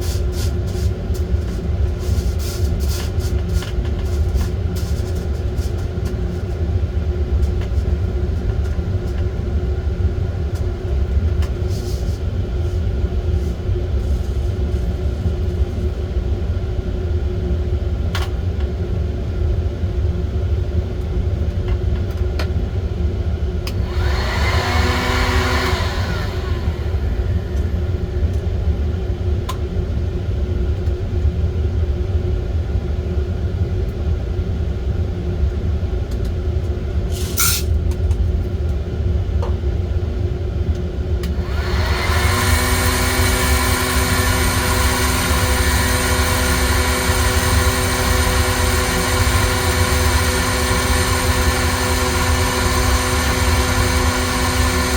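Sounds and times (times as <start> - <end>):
blower motor whirring hiss: 23.7 - 28.5, 41.3 - 54.9.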